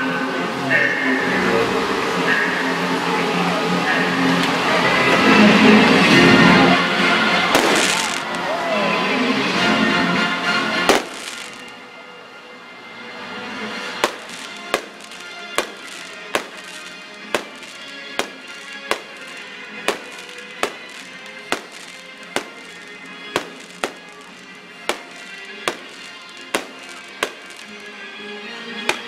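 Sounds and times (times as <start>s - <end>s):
music playing: 0.0s - 29.0s
fireworks bursting with bangs: 7.4s - 8.4s, 10.8s - 11.7s, 13.9s - 28.0s.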